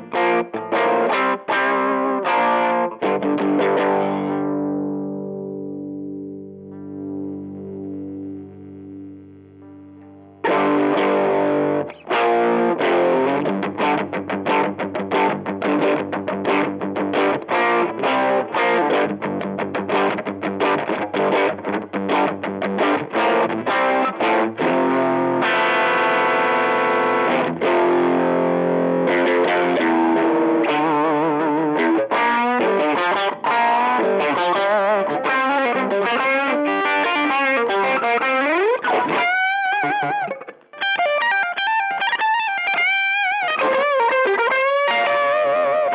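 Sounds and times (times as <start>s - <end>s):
overdriven electric guitar: 0.0s - 45.9s.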